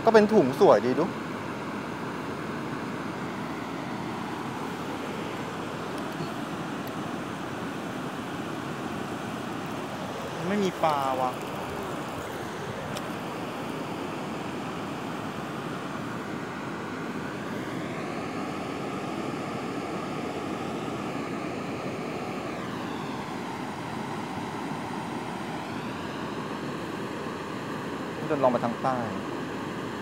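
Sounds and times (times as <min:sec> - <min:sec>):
faint engine hum: 0:00.0 - 0:30.0
steady rushing noise: 0:00.0 - 0:30.0.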